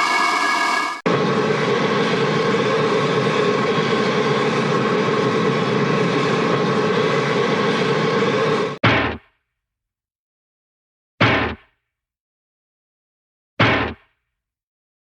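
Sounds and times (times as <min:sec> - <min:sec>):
held tones effect: 0:00.0 - 0:08.8
noisy mechanical drone: 0:00.0 - 0:08.8.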